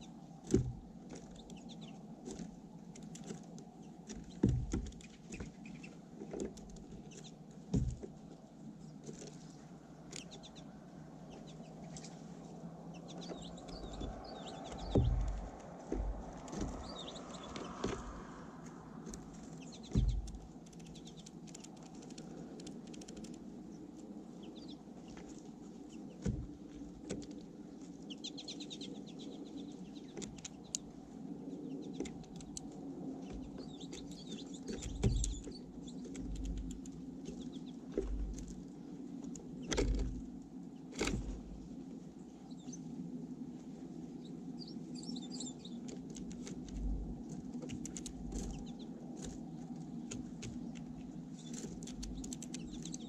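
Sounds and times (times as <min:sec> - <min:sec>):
low background rumble: 0:00.0 - 0:53.0
small songbirds chirping: 0:00.0 - 0:53.0
low thumps: 0:13.2 - 0:20.5.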